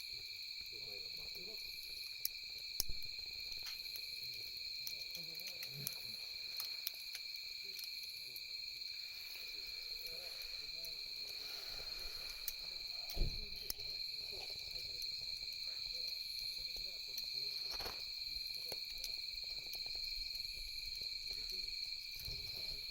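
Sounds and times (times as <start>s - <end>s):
campfire crackling and popping: 0.0s - 22.9s
night insects trilling: 0.0s - 22.9s
low thump: 13.2s - 13.6s.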